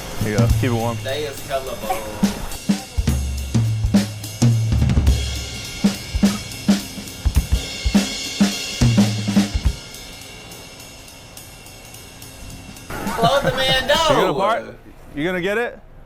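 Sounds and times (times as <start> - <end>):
drum beat with deep bass: 0.2 - 10.6.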